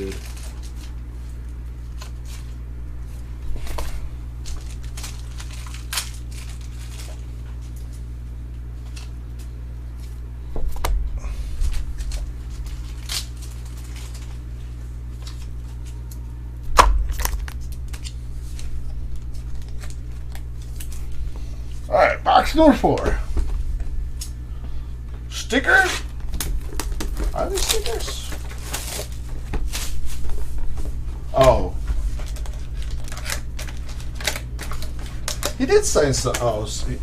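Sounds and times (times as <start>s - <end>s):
cards and packaging handled: 0.0s - 2.6s, 3.5s - 8.0s, 11.6s - 16.3s, 17.0s - 21.5s, 26.2s - 30.6s, 31.4s - 37.0s
low steady hum: 0.0s - 37.0s.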